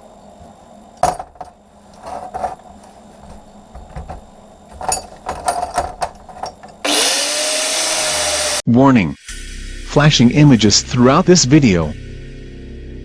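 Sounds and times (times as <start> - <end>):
scrap metal clinking: 1.0 - 6.8.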